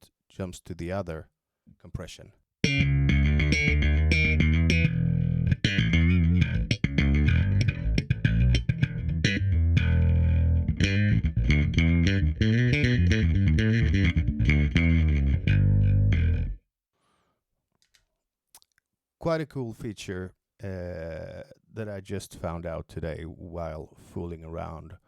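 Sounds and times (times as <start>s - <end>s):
electric bass plucked notes: 2.6s - 16.6s.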